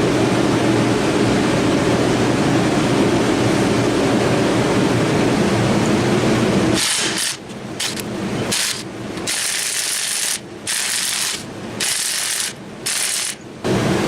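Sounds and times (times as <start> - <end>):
ratcheting wrench bursts: 6.8 - 13.4.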